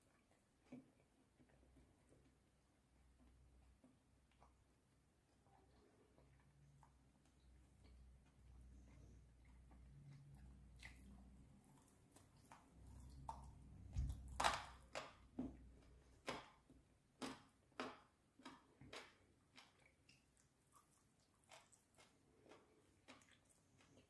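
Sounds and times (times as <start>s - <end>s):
crispy chicken chewing crunches: 17.2s - 24.0s.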